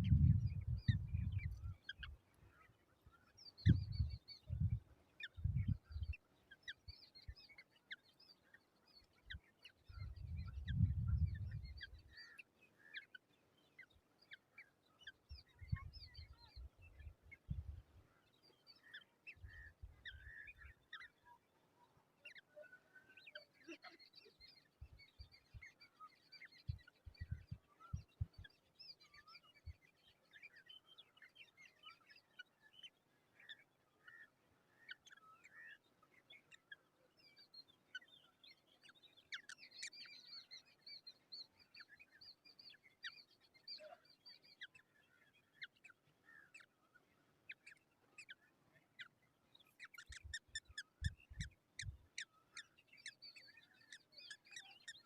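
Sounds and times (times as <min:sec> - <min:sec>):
bird chicks chirping: 0:00.0 - 0:03.0, 0:37.6 - 0:55.0.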